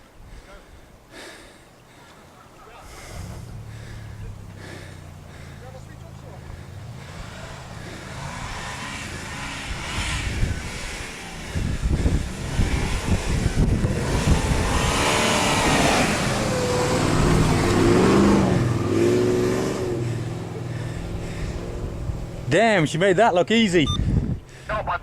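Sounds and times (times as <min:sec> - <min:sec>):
car engine revving: 0:03.0 - 0:22.6.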